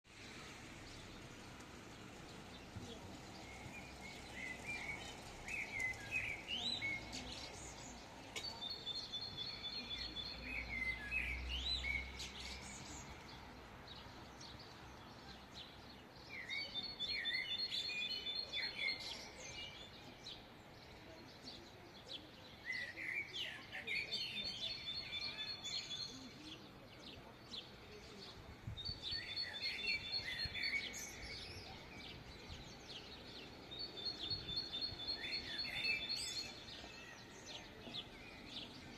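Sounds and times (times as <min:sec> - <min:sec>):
low city background noise: 0:00.1 - 0:38.9
songbird whistling song: 0:03.4 - 0:13.2, 0:16.3 - 0:20.4, 0:28.8 - 0:38.9.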